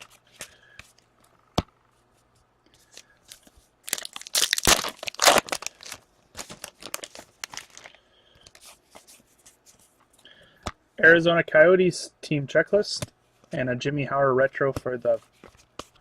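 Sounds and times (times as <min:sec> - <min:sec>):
cards crinkling when handled: 0:02.8 - 0:10.2
wrapper tearing and crumpling: 0:03.3 - 0:08.0.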